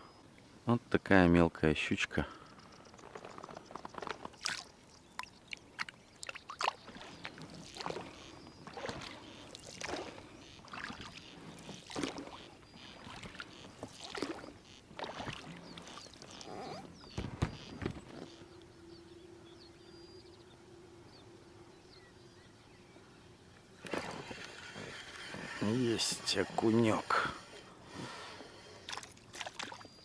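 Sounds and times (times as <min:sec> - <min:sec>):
water splashing and sloshing: 0:03.0 - 0:18.4, 0:23.8 - 0:30.0.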